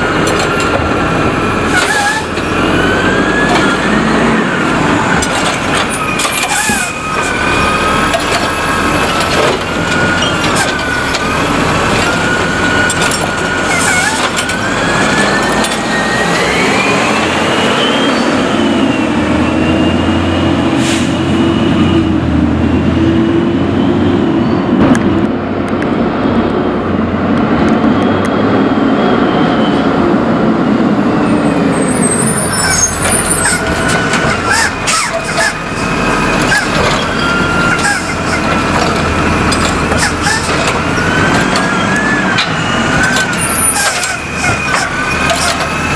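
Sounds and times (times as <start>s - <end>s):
hydraulic whine: 0.0s - 25.9s, 30.8s - 45.9s
garbage truck engine: 0.0s - 45.9s.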